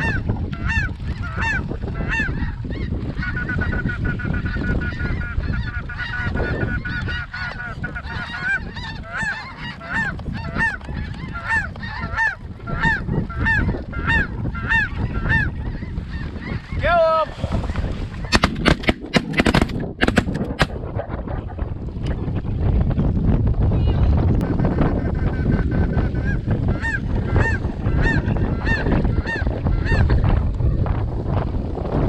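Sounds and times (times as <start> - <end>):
goose honking: 0.0 - 16.7, 25.0 - 30.0
fast goose chattering: 0.0 - 16.8.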